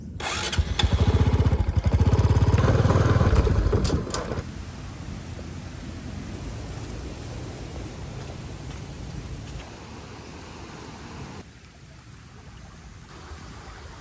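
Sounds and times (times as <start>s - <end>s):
motorbike engine running: 0.2s - 4.4s.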